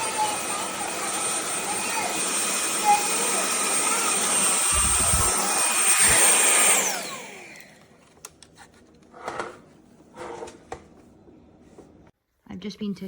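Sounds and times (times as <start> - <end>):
vacuum cleaner motor whining: 0.0 - 8.2.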